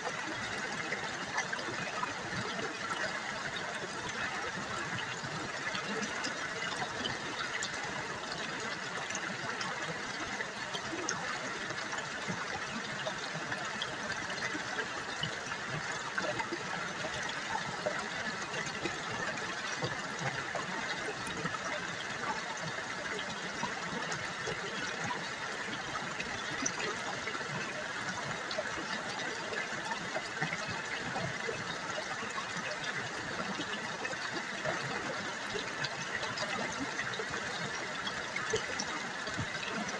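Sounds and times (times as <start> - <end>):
river water babbling over rocks: 0.0 - 39.9.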